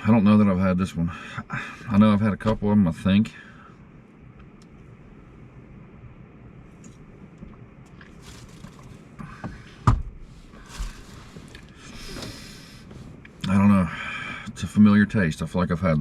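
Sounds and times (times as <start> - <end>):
handling noises: 6.8 - 13.4.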